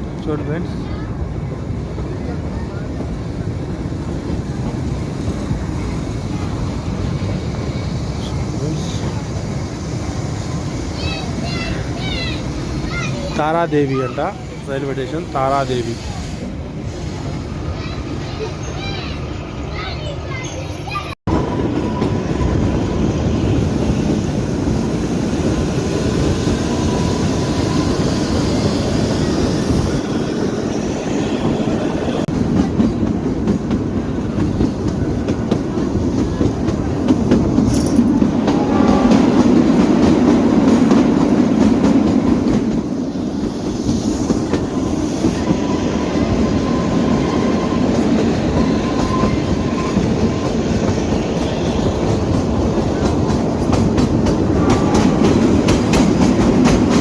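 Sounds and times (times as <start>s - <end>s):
train wheels clattering on rails: 21.7s - 57.0s.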